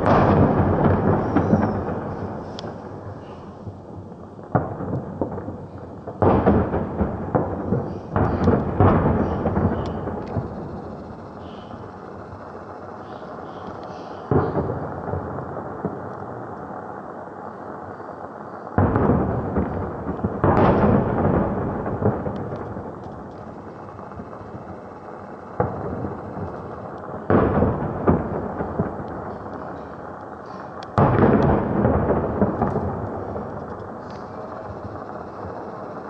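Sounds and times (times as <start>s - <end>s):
rolling rumble: 0.0s - 17.4s, 18.8s - 36.0s
fireworks booming: 0.0s - 36.0s.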